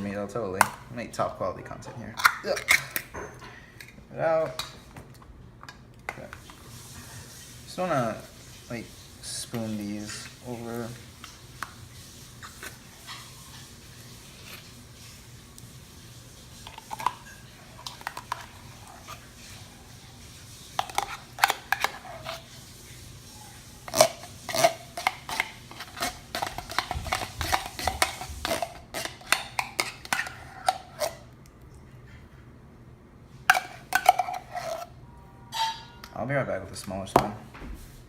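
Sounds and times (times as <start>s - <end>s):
metal spoon clinking and scraping: 33.5s - 34.9s, 35.5s - 36.2s.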